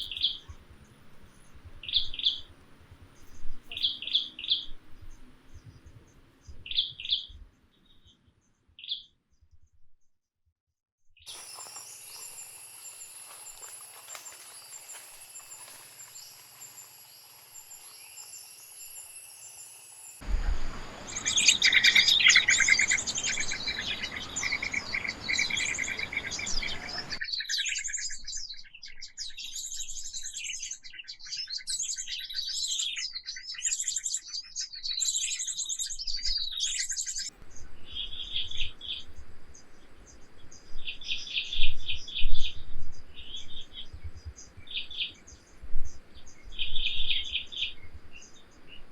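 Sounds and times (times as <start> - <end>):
birds chirping: 0.0 - 8.2, 11.3 - 28.0.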